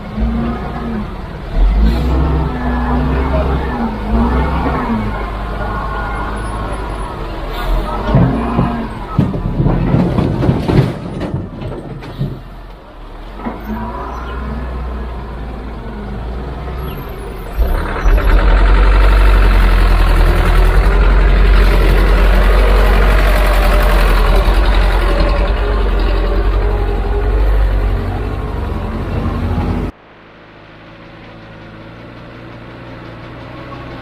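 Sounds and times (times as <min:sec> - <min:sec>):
heavy diesel machinery engine: 0:00.0 - 0:34.0
irregular knocks: 0:08.0 - 0:12.6.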